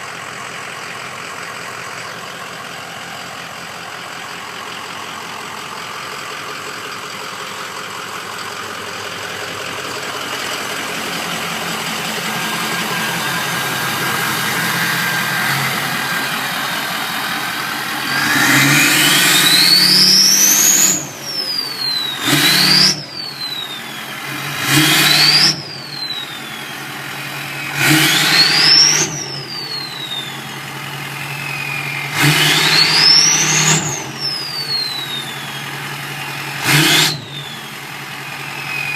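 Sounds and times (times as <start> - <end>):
diesel engine idling and revving: 0.0 - 38.9
turbo whistle: 18.0 - 38.9.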